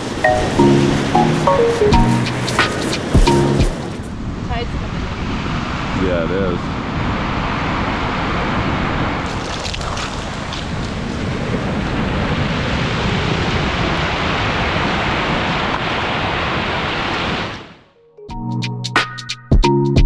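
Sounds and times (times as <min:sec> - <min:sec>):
wind noise on microphone: 0:00.0 - 0:04.6
ocean surf breaking: 0:00.0 - 0:17.8.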